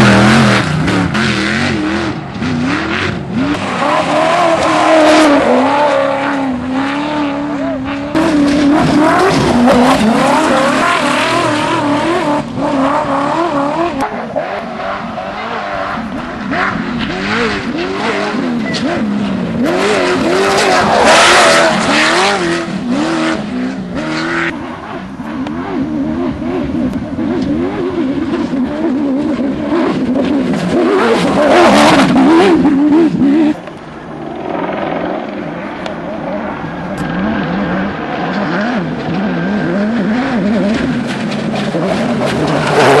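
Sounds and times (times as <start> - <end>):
truck engine revving hard: 0.0 - 24.6, 25.3 - 33.6, 36.0 - 43.0
off-road truck engine racing past: 34.2 - 43.0.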